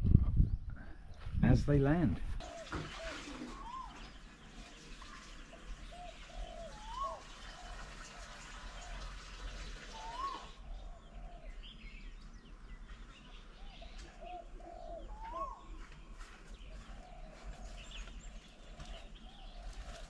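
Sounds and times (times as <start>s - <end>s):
higher rising bird calls: 2.4s - 4.2s, 5.9s - 9.1s, 9.7s - 11.9s, 13.5s - 16.0s
low repeated bird cooing: 2.4s - 20.0s
faint high bird chirps: 5.0s - 7.8s, 9.9s - 20.0s.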